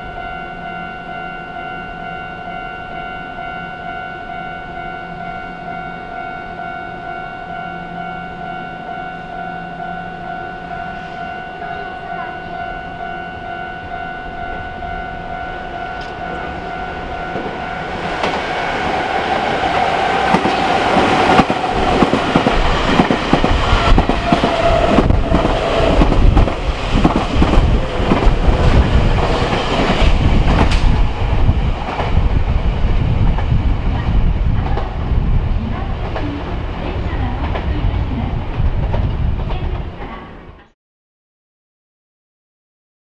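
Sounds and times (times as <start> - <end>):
steady tones: 0.0 - 38.3
electric train running past: 0.0 - 40.6
wheels clacking over rail joints: 15.9 - 31.2.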